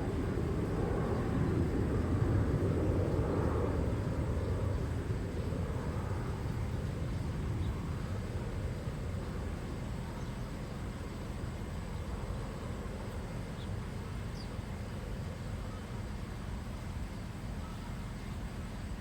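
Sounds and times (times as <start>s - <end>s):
faint bird chirps: 17.1s - 18.4s.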